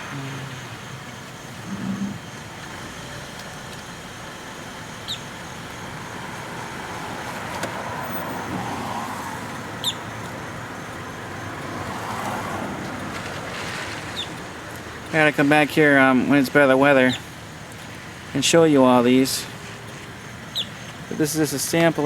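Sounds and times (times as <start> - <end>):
car moving slowly: 0.0 - 22.0.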